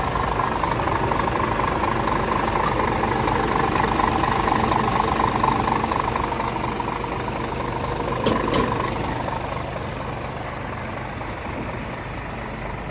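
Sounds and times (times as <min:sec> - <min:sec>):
diesel truck engine idling: 0:00.0 - 0:12.9.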